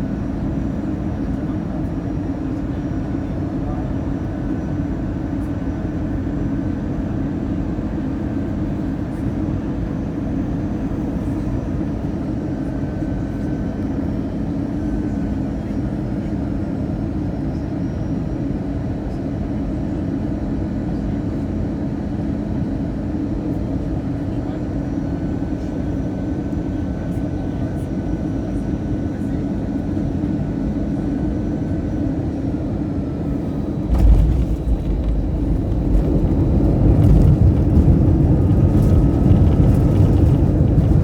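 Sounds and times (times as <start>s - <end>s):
airplane cabin rumble: 29.1s - 41.0s.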